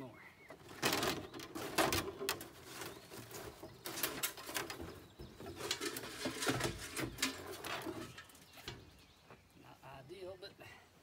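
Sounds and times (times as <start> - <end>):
rustling: 0.5 - 9.1.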